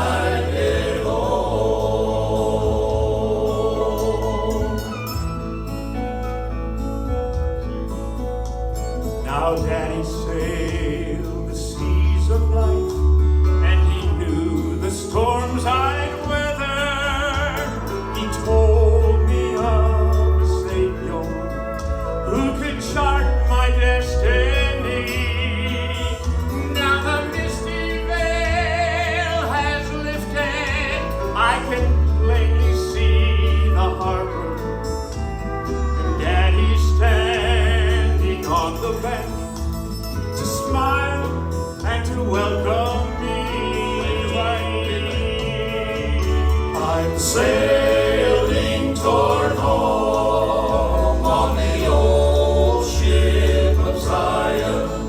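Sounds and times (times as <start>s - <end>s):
gospel quartet singing: 0.0s - 55.0s.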